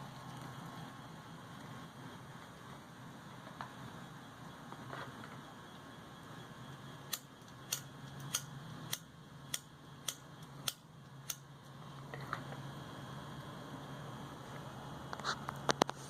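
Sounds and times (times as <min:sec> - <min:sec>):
sharp clicks: 0:07.1 - 0:11.4.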